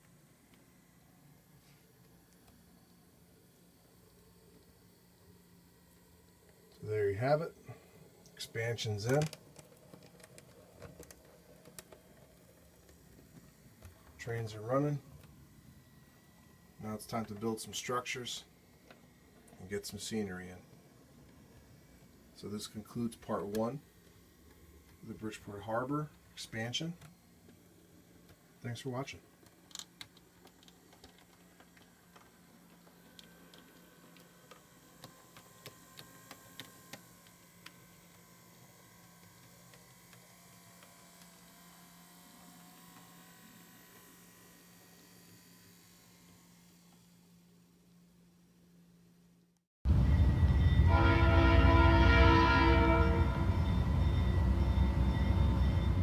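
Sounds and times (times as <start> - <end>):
faint irregular clicks: 9.0 - 14.2, 29.4 - 38.2
locomotive rumble: 49.9 - 56.0
low steady hum: 49.9 - 56.0
train horn chord: 49.9 - 56.0.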